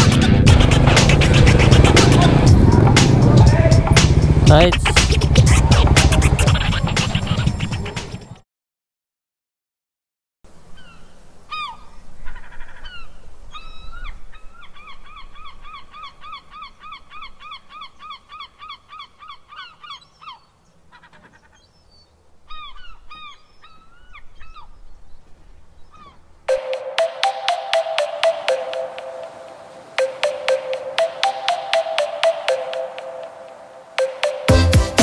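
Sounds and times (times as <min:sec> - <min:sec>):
honking bird calls: 0:03.8 - 0:08.4.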